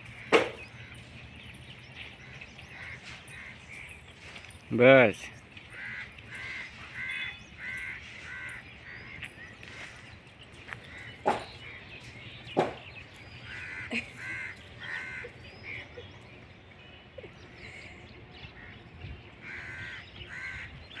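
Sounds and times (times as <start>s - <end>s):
harsh bird calls: 0.0s - 21.0s
sharp knocks: 0.3s - 0.6s, 12.6s - 12.9s.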